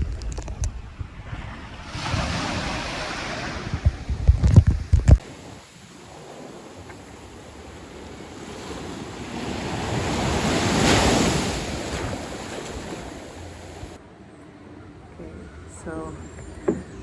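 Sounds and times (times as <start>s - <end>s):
sea waves breaking on beach: 1.2s - 4.2s, 4.8s - 14.0s.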